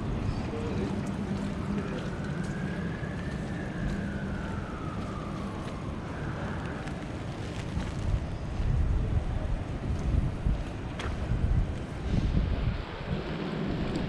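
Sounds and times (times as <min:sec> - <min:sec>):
emergency vehicle siren wailing: 0:00.0 - 0:08.2
city traffic noise: 0:00.0 - 0:14.0.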